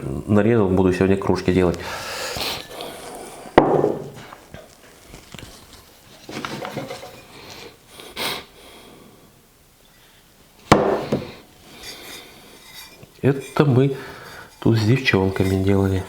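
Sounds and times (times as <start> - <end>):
mugs clinking and rubbing: 1.3 - 8.4, 10.6 - 16.0
ceramic mug knock: 3.6 - 4.2, 10.7 - 11.4.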